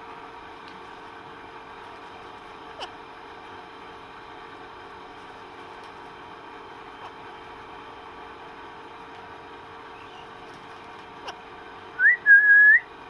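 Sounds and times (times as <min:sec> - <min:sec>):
faint background hum: 0:00.0 - 0:13.0
parrot whistling: 0:12.0 - 0:12.9.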